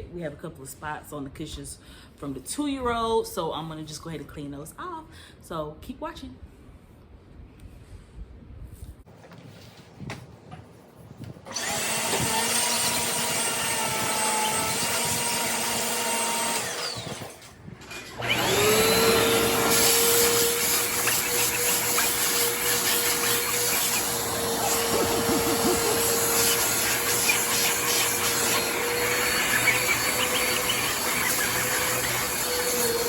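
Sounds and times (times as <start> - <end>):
vacuum cleaner running: 11.5 - 33.0.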